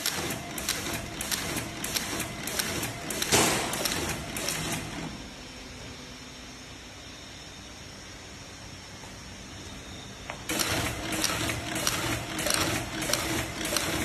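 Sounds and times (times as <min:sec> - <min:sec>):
sharp mechanical clicks: 0:00.0 - 0:05.1, 0:10.5 - 0:14.0.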